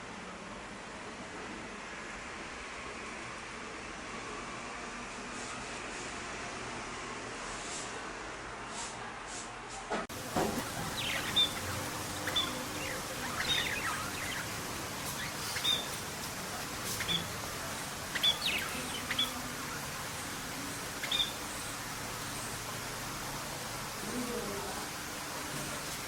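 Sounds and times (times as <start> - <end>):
background hiss: 10.1 - 26.0
songbirds chirping: 10.1 - 26.0.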